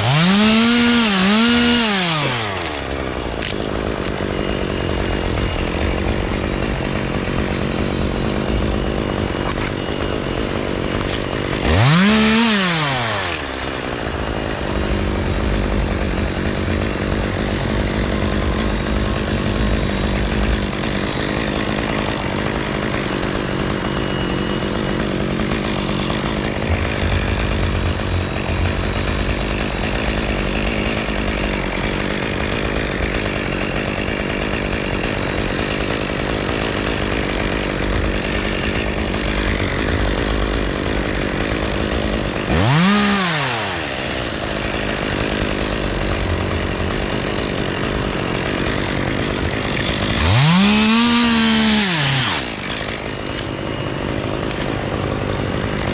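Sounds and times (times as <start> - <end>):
chainsaw running and revving: 0.0 - 55.9.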